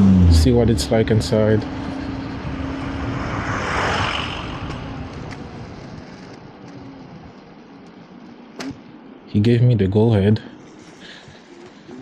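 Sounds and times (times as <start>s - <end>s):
vehicle passing on street: 0.0s - 9.2s.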